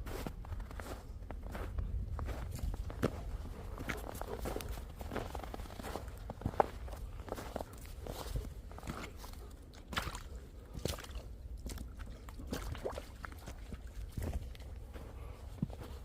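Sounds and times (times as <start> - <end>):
footsteps crunching in snow: 0.0 - 9.4.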